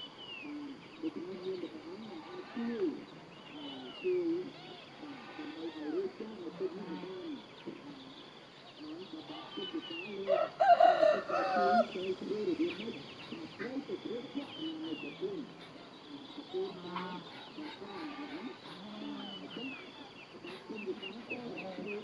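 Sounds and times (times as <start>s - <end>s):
low bird calls: 0.0s - 22.0s
rooster crowing: 10.3s - 12.0s.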